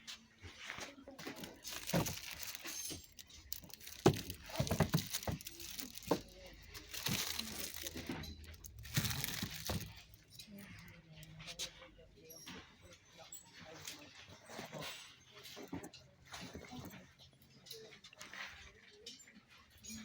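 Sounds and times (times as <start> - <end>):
glassware clinking and knocking: 1.6 - 10.0.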